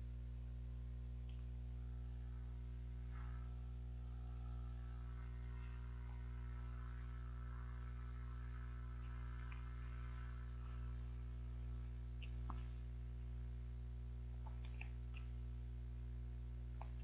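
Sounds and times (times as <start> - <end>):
low electrical hum: 0.0 - 17.0
soft chewing and lip sounds: 9.0 - 12.9, 14.3 - 15.5, 16.7 - 17.0.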